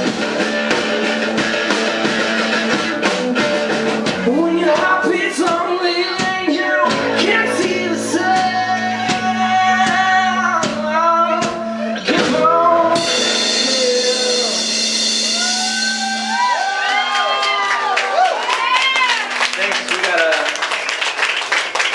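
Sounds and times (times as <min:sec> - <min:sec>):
live rock band playing: 0:00.0 - 0:20.2
crowd yelling and cheering: 0:00.0 - 0:21.9
person singing: 0:04.2 - 0:16.0.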